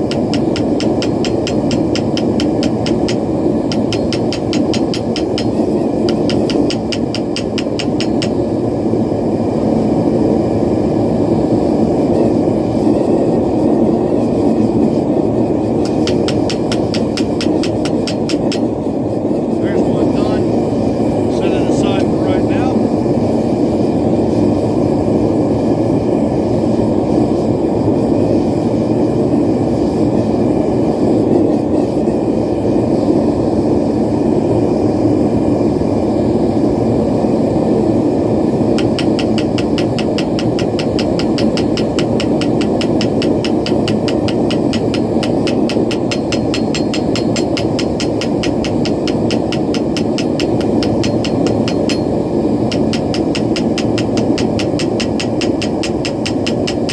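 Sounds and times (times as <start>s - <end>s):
fast sharp ticks: 0.0s - 8.4s, 15.8s - 18.8s, 38.7s - 56.9s
forge burner roaring: 0.0s - 56.9s.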